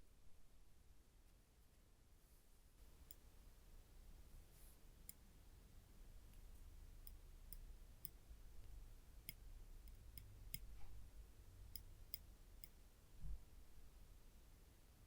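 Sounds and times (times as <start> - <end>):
tweezers ticking: 7.0 - 8.2, 9.3 - 10.8.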